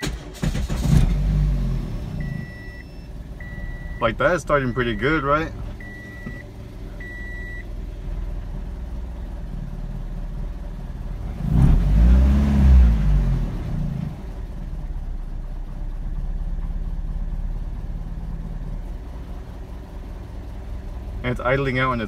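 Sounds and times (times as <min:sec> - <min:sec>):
engine revving: 0:00.0 - 0:02.6, 0:11.0 - 0:14.8
car engine idling: 0:00.0 - 0:11.5, 0:12.9 - 0:22.0.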